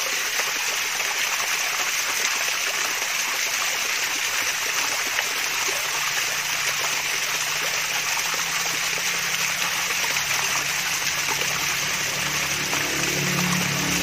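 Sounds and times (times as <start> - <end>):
small waterfall splashing: 0.0 - 14.0.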